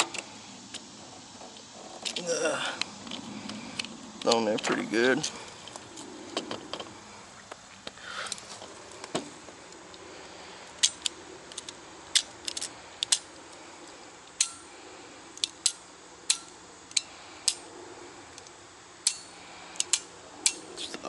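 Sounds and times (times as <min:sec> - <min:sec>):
metallic clicks of hand tools: 0:10.8 - 0:13.3, 0:14.3 - 0:14.7, 0:15.4 - 0:17.6, 0:18.4 - 0:21.0.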